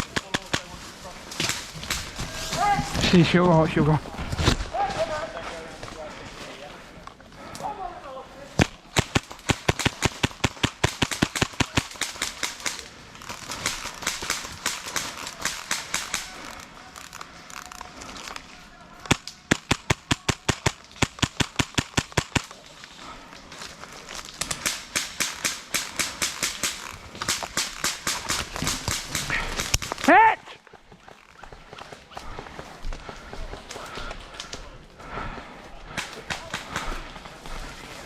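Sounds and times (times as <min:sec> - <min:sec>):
airsoft guns firing bursts: 0:08.6 - 0:16.6, 0:19.1 - 0:22.5, 0:24.4 - 0:29.9.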